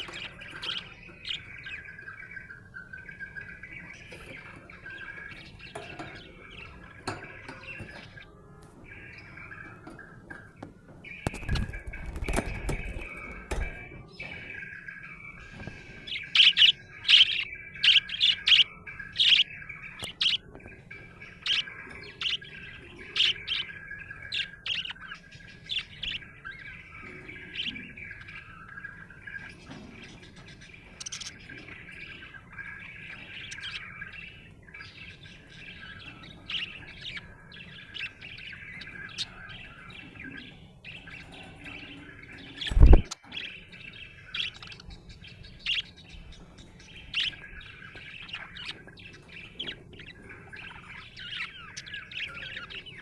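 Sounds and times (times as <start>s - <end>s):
sharp budgerigar chirps: 14.6s - 29.8s, 42.6s - 46.0s.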